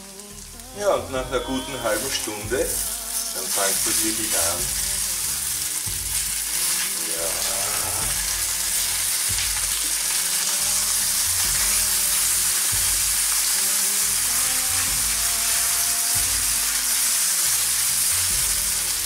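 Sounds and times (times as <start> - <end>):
semolina sizzling in oil: 0.0 - 19.0.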